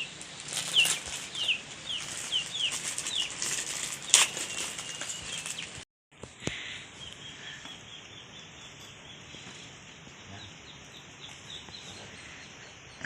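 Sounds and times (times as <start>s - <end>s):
light rain hissing: 0.0s - 5.8s
faint high bird chirps: 4.0s - 5.8s.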